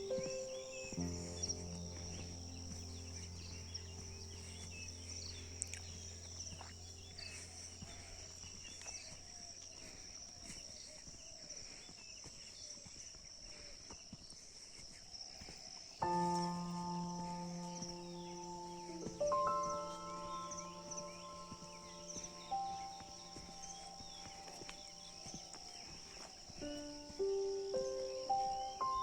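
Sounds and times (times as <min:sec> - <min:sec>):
low music chord: 0:00.0 - 0:07.5, 0:16.0 - 0:29.0
bird chirps and calls: 0:16.1 - 0:29.0.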